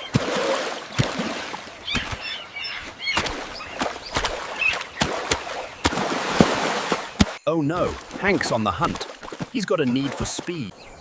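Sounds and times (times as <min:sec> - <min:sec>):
bird chirps: 0:01.7 - 0:06.0, 0:07.4 - 0:11.0.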